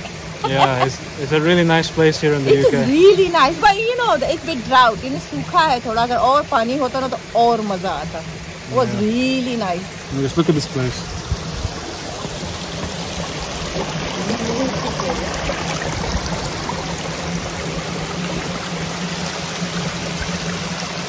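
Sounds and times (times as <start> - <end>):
water rushing over rocks: 0.0 - 21.0.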